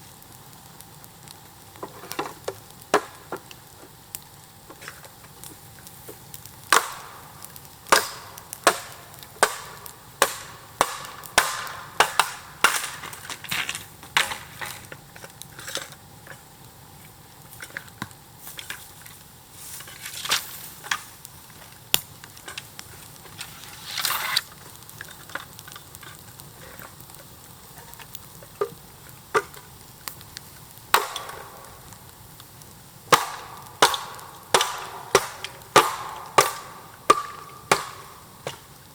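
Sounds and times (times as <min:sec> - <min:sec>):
blade chopping bamboo: 0:06.7 - 0:07.2, 0:07.9 - 0:14.4, 0:30.9 - 0:31.6, 0:33.1 - 0:38.6.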